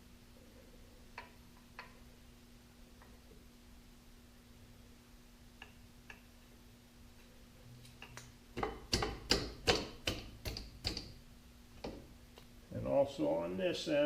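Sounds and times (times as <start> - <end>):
tools knocking: 8.0 - 11.2.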